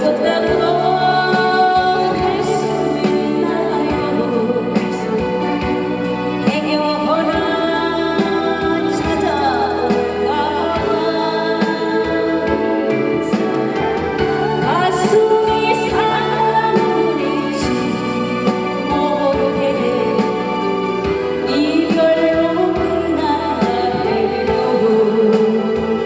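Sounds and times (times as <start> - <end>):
musical accompaniment: 0.0 - 26.0
woman singing: 0.0 - 26.0.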